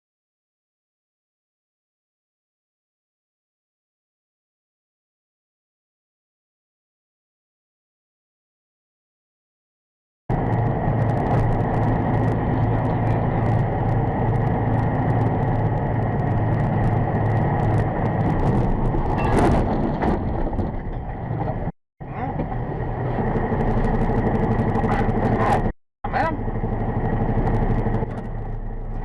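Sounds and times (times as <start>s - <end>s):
car engine and road rumble: 10.3s - 29.0s.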